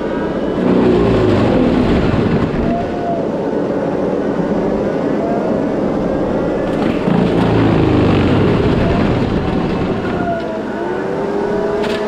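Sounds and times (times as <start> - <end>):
diesel engine running hard: 0.0 - 2.8, 5.5 - 12.0.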